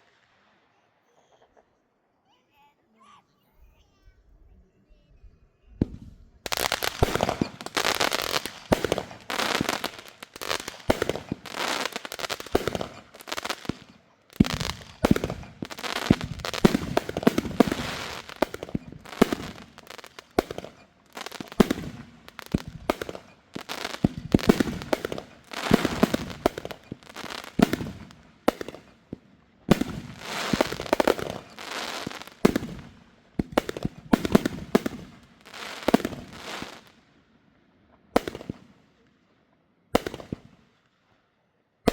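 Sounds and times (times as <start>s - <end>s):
fireworks popping: 5.7s - 37.0s, 38.2s - 38.8s, 40.0s - 40.6s.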